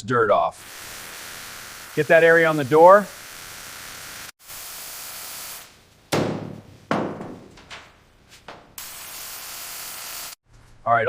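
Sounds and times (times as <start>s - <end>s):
high-pressure spray hissing: 0.6s - 5.8s, 8.8s - 10.4s
sharp knocks with ringing: 6.1s - 8.8s.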